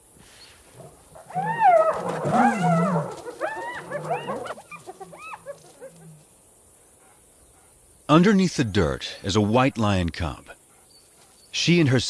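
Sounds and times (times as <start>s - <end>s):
wild animal whining calls: 0.8s - 6.3s.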